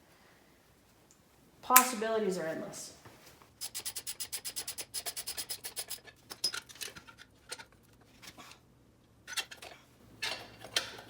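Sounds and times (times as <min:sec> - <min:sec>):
socket ratchet clicking: 0:03.6 - 0:06.6.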